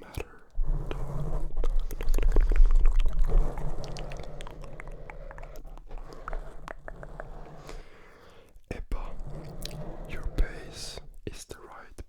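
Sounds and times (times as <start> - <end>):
wet mouth clicks and smacks: 1.7 - 7.0.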